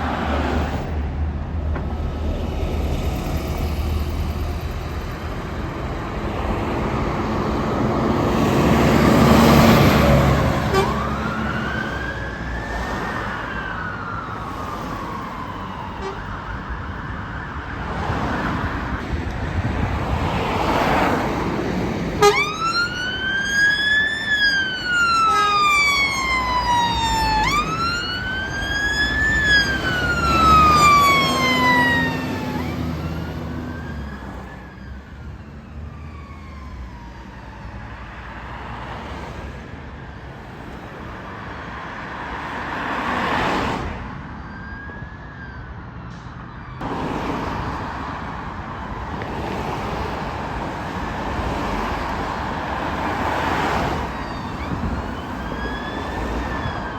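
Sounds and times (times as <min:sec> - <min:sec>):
emergency vehicle sirens wailing: 0:00.0 - 0:56.9
vehicles driving past: 0:00.0 - 0:56.9.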